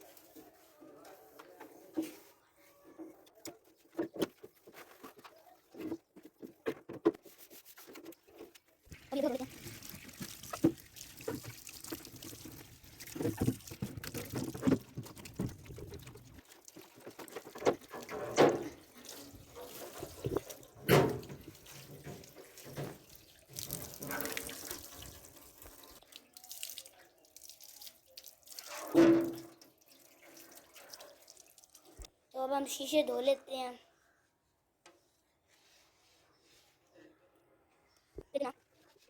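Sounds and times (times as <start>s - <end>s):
tap water splashing in sink: 8.9s - 32.1s
water dripping: 8.9s - 32.1s.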